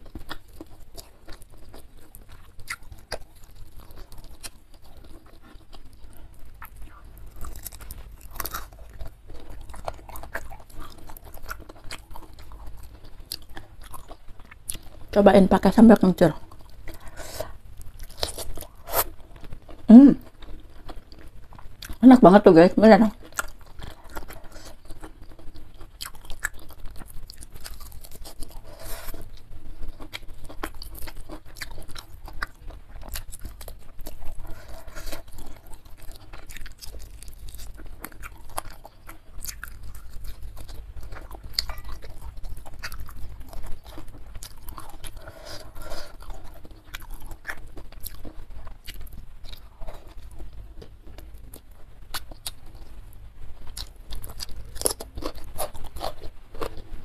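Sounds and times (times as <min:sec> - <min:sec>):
chewing and crunching: 0:00.0 - 0:22.0, 0:23.1 - 0:57.0.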